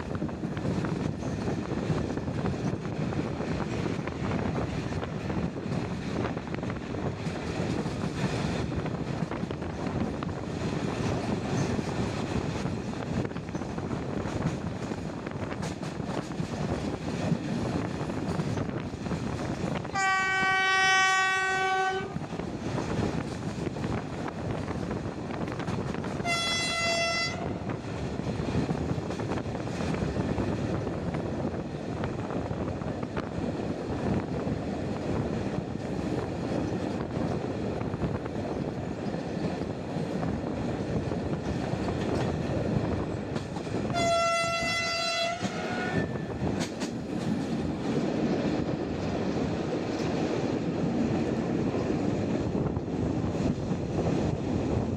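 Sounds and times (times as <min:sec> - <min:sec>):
train rolling rumble: 0:00.0 - 0:54.9
locomotive horn blasts: 0:19.9 - 0:22.2, 0:26.2 - 0:27.7, 0:43.9 - 0:46.2.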